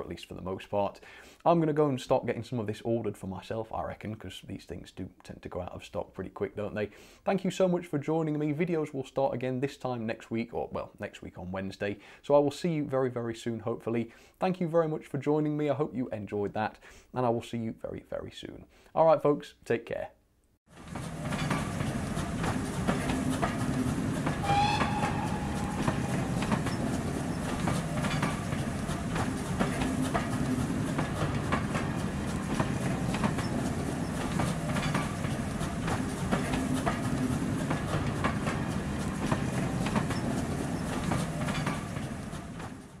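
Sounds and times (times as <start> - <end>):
train wheels clicking over rail joints: 20.7 - 43.0
high tone: 24.4 - 27.5.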